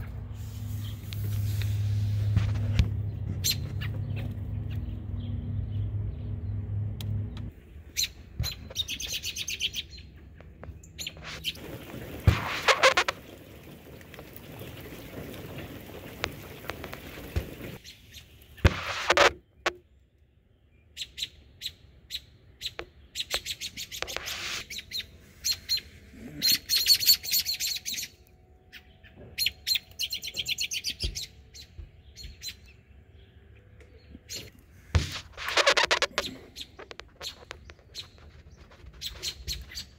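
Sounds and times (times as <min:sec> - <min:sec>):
rough rustling hiss: 0:00.3 - 0:02.6
small bird chirping: 0:07.2 - 0:11.6, 0:35.6 - 0:39.9
loud rustle: 0:11.2 - 0:17.8, 0:24.0 - 0:24.6, 0:34.9 - 0:39.9.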